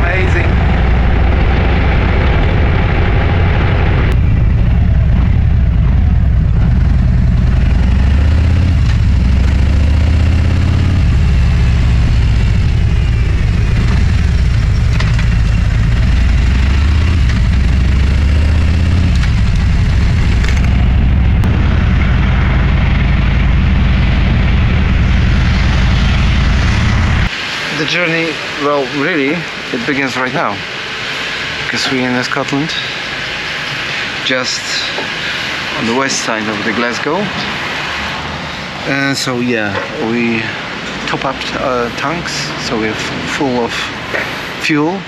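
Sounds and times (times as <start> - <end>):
motorcycle engine rumbling: 0.0 - 32.1
wind and road hiss: 22.7 - 45.0.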